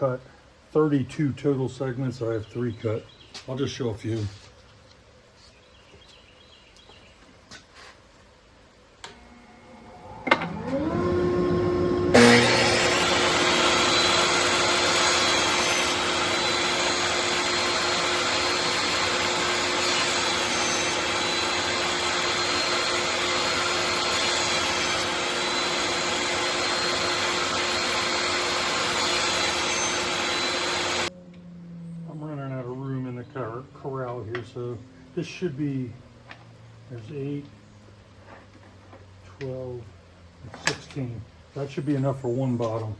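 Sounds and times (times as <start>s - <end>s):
table saw motor whine: 9.1s - 32.2s.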